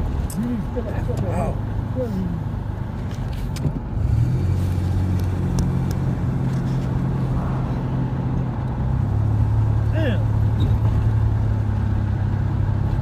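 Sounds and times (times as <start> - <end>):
truck engine and road hum: 0.0 - 13.0.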